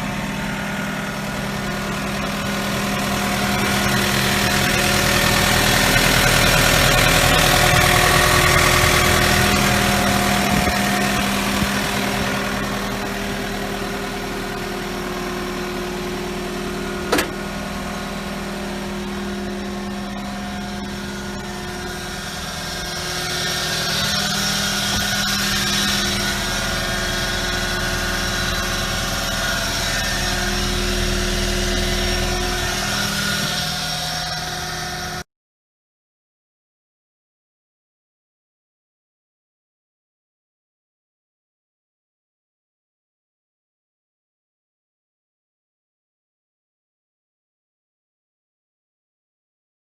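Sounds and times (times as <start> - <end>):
diesel engine running: 0.0 - 35.2.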